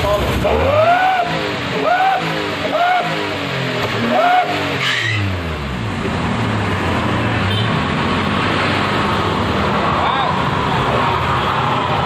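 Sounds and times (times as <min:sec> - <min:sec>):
engine revving with howling exhaust: 0:00.0 - 0:12.0.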